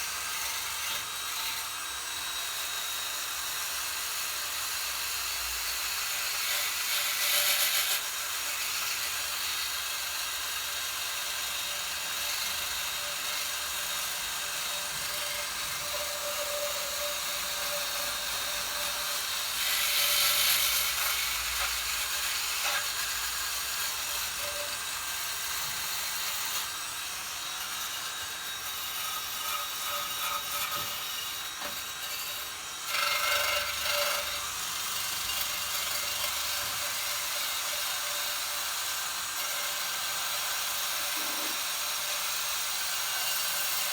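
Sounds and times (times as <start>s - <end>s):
power tool motor whine: 0.0s - 43.9s
wire wheel scrubbing metal: 41.0s - 41.6s.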